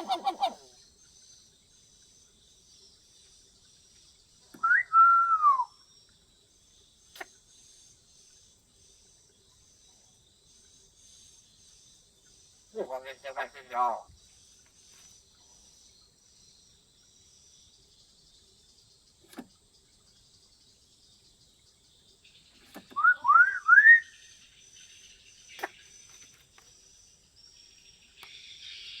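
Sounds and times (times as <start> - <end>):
parrot rising whistles: 4.6 - 5.7, 23.0 - 24.1.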